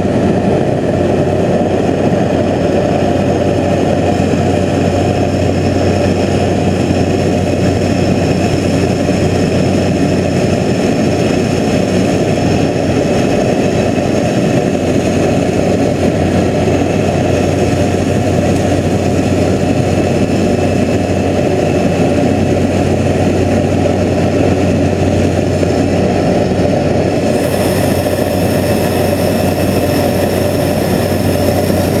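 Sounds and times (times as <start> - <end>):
plane engine and propeller droning: 0.0 - 32.0
bright hiss: 27.2 - 32.0.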